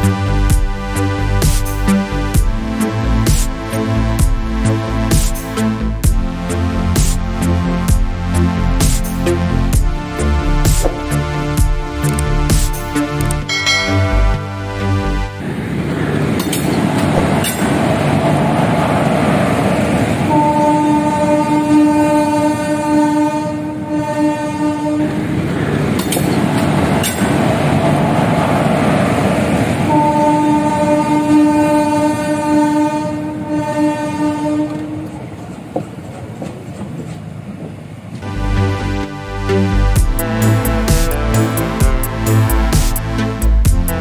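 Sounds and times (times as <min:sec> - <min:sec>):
train rumbling along track: 0:00.0 - 0:44.0
train horn blast: 0:13.0 - 0:15.4, 0:20.2 - 0:25.3, 0:29.8 - 0:35.2, 0:38.2 - 0:44.0.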